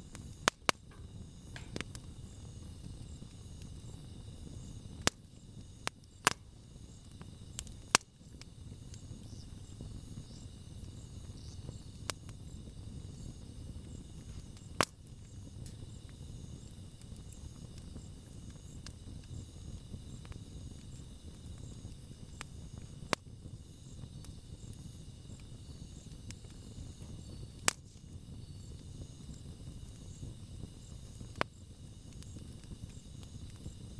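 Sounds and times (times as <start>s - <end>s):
campfire burning: 0.0s - 33.9s
wood crackling pops: 0.1s - 4.2s, 5.0s - 9.4s, 13.9s - 23.3s.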